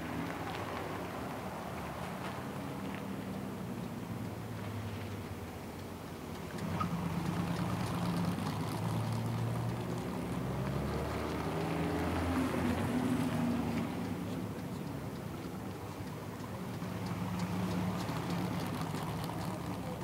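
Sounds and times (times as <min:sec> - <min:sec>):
racing car engines revving: 0:06.5 - 0:14.4, 0:16.4 - 0:20.0.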